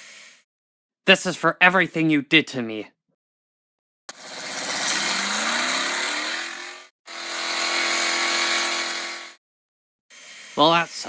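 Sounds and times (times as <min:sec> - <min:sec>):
vehicle engine revving: 0:04.1 - 0:06.9.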